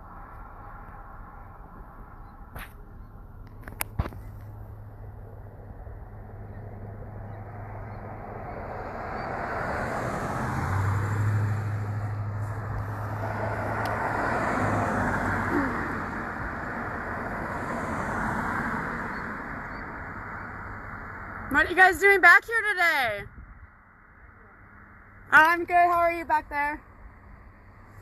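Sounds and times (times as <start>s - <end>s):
steady low traffic hum: 0.0s - 28.0s
vehicles passing: 0.0s - 28.0s.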